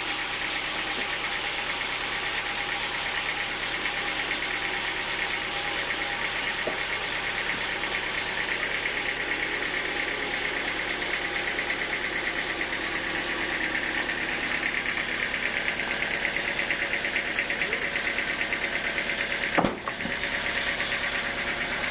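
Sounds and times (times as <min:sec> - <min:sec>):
sawmill machinery pulsing: 0:00.0 - 0:21.9.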